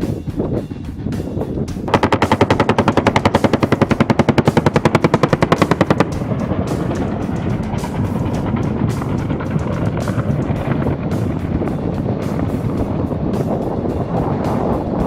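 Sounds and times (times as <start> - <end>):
helicopter engine noise: 1.8 - 15.0
machine gun burst: 1.9 - 7.0.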